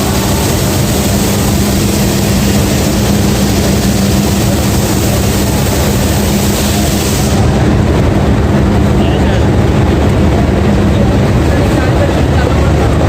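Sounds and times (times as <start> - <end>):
high hiss: 0.0 - 7.6
train engine rumbling: 0.0 - 13.0.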